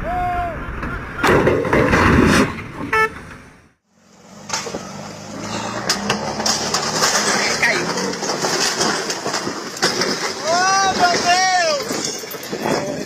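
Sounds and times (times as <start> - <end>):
loud rush of road noise: 0.0 - 13.0
vehicle horn toot: 2.9 - 3.3.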